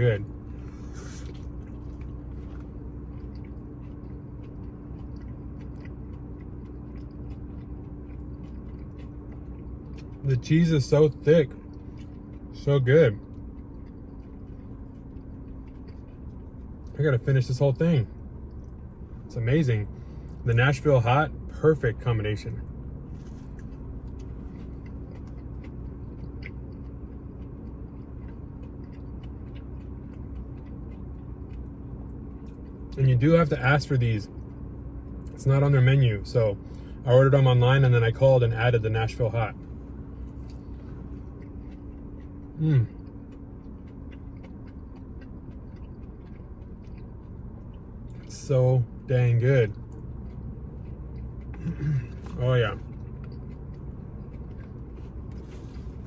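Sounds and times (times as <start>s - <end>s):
chewing: 0.0s - 35.4s, 36.1s - 56.0s
air conditioner hum: 0.0s - 56.0s.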